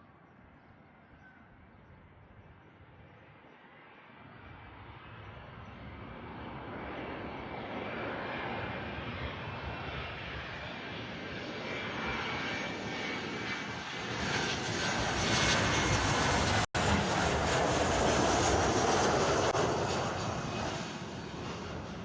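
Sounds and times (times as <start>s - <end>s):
jet airliner passing: 0.1s - 22.0s.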